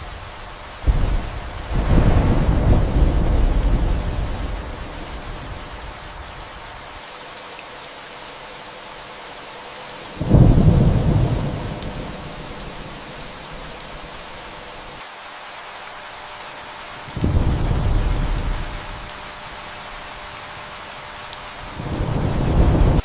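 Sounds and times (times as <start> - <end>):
thunder rumbling: 0.0 - 6.9, 10.2 - 14.3, 17.1 - 19.2, 21.6 - 23.0
steady rain: 0.0 - 23.0.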